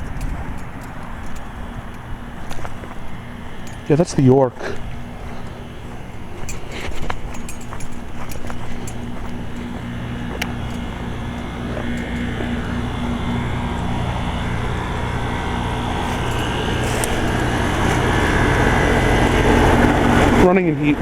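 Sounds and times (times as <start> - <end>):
heat pump compressor hum: 0.0 - 21.0
outdoor fan whoosh: 0.0 - 21.0.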